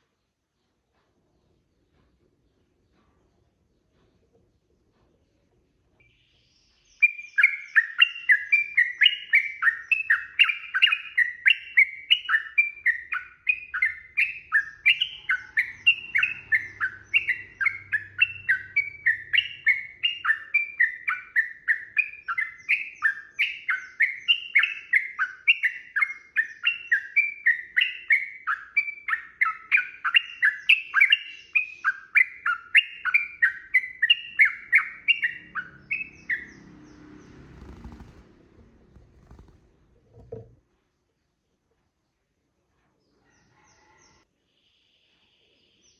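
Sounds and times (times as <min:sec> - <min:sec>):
bird singing bubbly chirps: 0:06.0 - 0:36.6.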